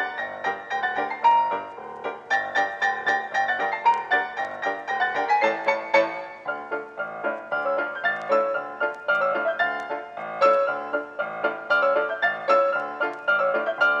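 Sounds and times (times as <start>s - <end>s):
keyboard playing plucked notes: 0.0s - 14.0s.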